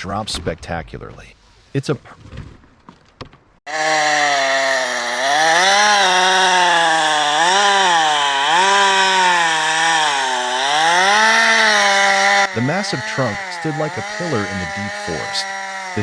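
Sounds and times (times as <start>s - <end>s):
chainsaw cutting wood: 3.7s - 16.0s.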